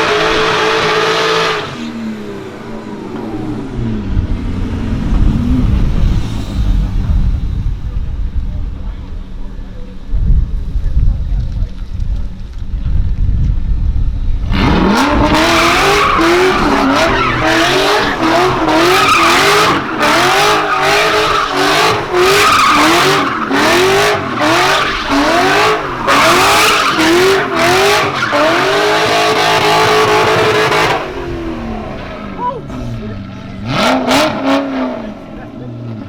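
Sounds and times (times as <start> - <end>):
car engine revving hard: 0.0 - 8.1, 14.4 - 36.0
tyres screeching: 14.6 - 31.2.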